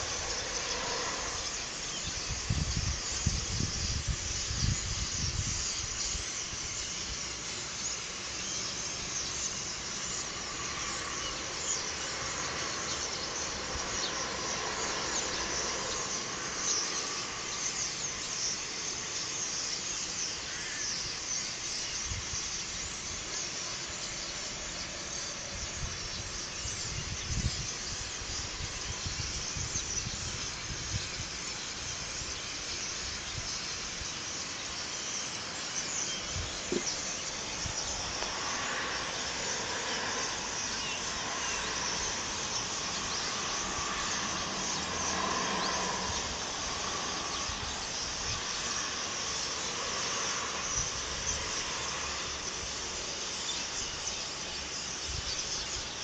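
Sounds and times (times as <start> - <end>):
wind rumbling on microphone: 0.0 - 7.4, 21.8 - 34.8, 35.4 - 56.0.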